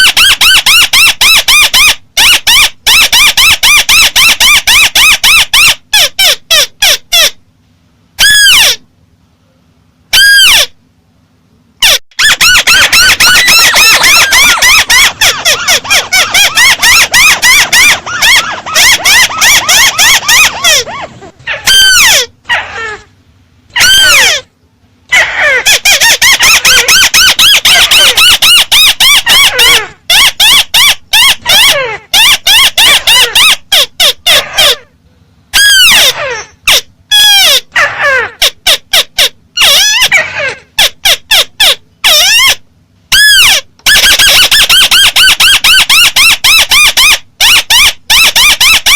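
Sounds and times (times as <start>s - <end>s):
bird calling shrill notes: 11.8s - 22.3s.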